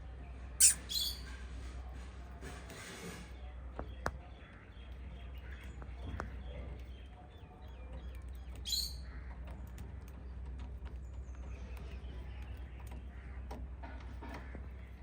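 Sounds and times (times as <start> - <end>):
sharp high bird call: 0.6 - 1.2
birds chirping: 0.6 - 1.3.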